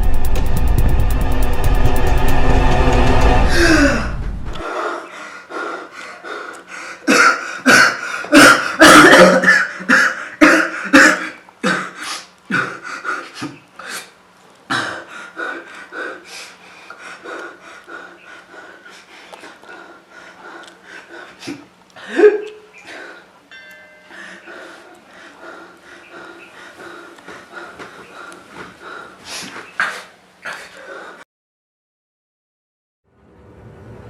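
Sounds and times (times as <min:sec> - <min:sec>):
background music: 0:00.0 - 0:04.6
person coughing: 0:07.1 - 0:12.8, 0:21.5 - 0:22.7.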